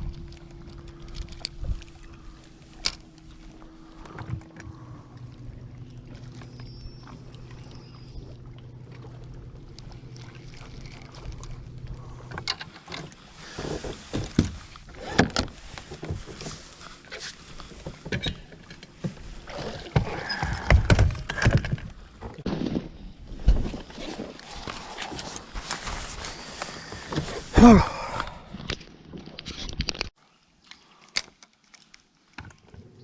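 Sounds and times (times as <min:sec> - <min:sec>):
boat motor humming: 0:00.0 - 0:22.4.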